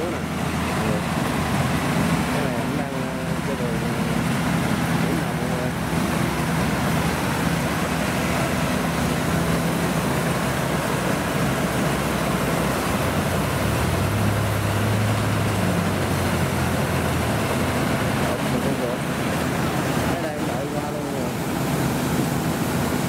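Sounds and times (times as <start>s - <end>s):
cutting and threshing machinery noise: 0.0s - 23.0s
diesel engine hum: 0.0s - 23.0s.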